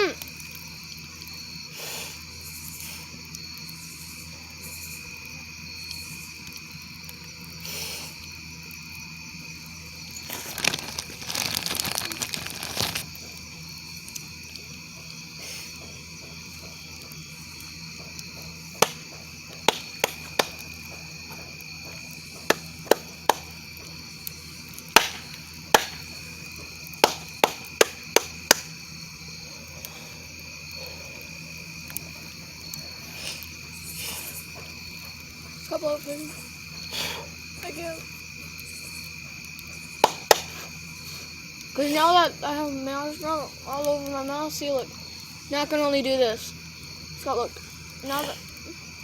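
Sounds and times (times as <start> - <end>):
campfire popping and cracking: 0.0 - 49.0
crickets chirring: 0.0 - 49.0
rustling: 10.1 - 13.4.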